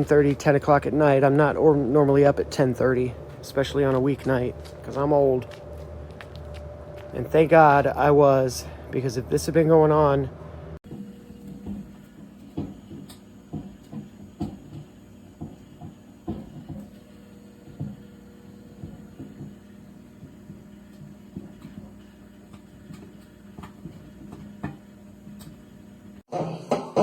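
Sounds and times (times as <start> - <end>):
steady low hum: 0.0 - 26.3.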